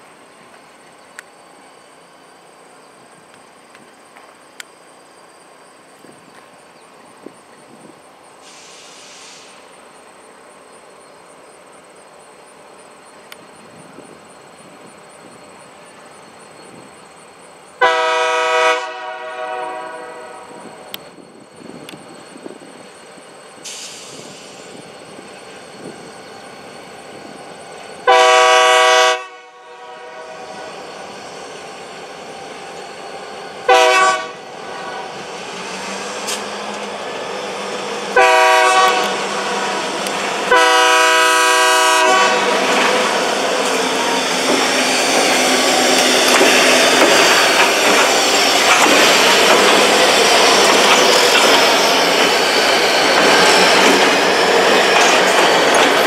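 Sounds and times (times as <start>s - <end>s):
locomotive air horn blasts: 17.8s - 20.7s, 28.0s - 30.8s, 33.7s - 35.2s, 38.2s - 43.1s
steel wheels on rails: 30.4s - 56.0s.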